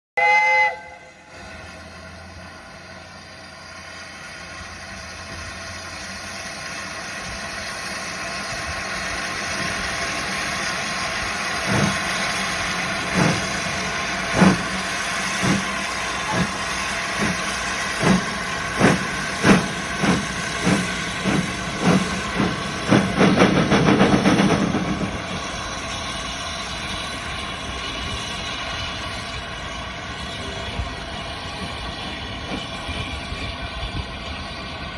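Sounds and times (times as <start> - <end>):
steam locomotive whistle: 0.2 - 1.5, 15.4 - 20.2
locomotive exhaust chuffs: 0.2 - 34.9
steam hissing: 0.2 - 34.9.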